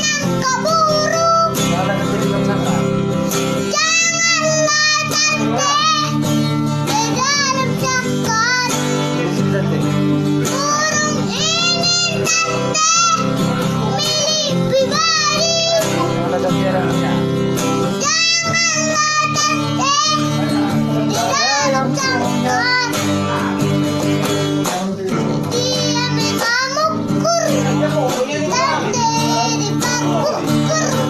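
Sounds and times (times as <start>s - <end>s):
child singing: 0.0s - 2.3s, 3.6s - 9.2s, 10.4s - 16.2s, 17.8s - 23.7s, 25.1s - 31.0s
acoustic guitar: 0.0s - 31.0s.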